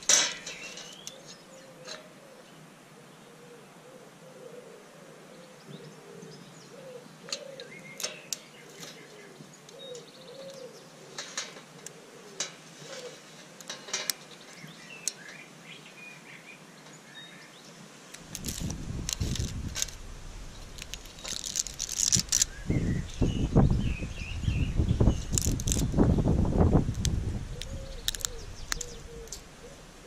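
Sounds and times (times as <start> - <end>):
wire rack clicks: 0.0 - 2.1, 13.6 - 14.4
small birds chirping: 0.0 - 4.7, 5.3 - 30.0
bird low rising and falling call: 0.4 - 11.2, 18.4 - 26.4, 27.2 - 30.0.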